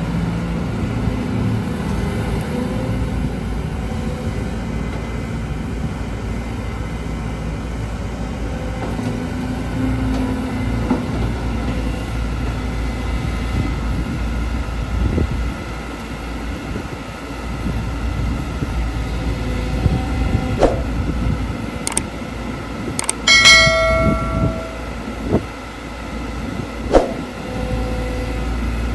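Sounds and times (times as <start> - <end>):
excavator diesel engine running: 0.0 - 28.9
sharp knocks: 23.3 - 25.0.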